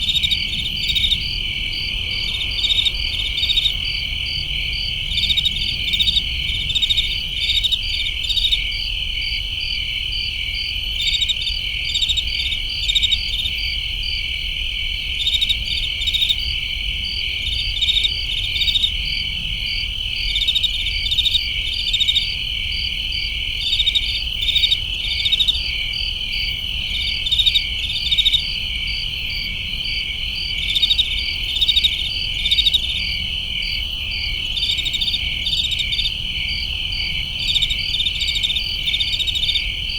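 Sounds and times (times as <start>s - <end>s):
crickets trilling: 0.0s - 39.9s
sharp cricket chirps: 0.0s - 39.9s.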